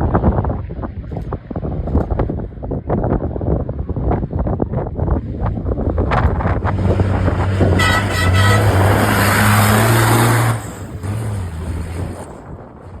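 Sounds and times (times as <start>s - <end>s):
truck engine passing at speed: 5.2s - 13.0s
truck horn toots: 6.8s - 11.5s.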